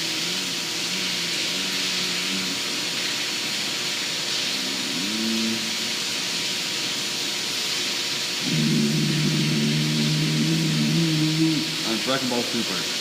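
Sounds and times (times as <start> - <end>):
steady hiss: 0.0 - 13.0
faint hum: 4.3 - 6.3, 8.4 - 12.6
person humming: 4.7 - 5.7, 8.4 - 12.0.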